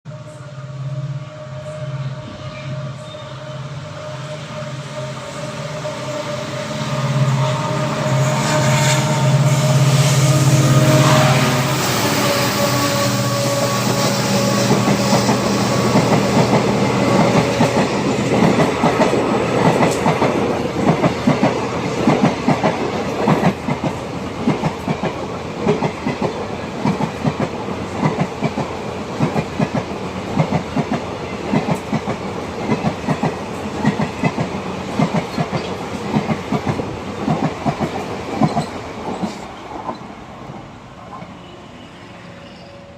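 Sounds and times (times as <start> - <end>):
passenger train rushing past: 0.1 - 42.9
train wheels clickety-clack: 11.9 - 40.1.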